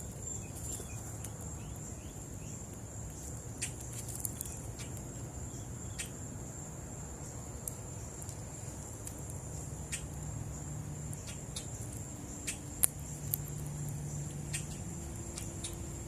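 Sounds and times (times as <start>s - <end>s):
high-pitched insect trill: 9.4s - 16.0s.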